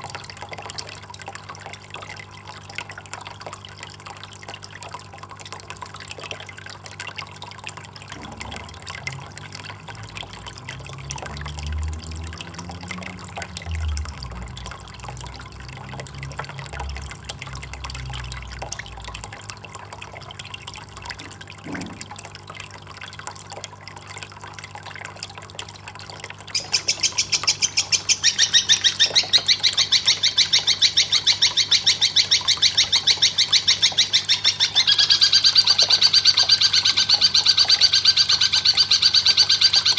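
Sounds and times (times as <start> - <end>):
faint water trickle: 0.0 - 39.9
high-pitched pulsing bird call: 26.5 - 39.9.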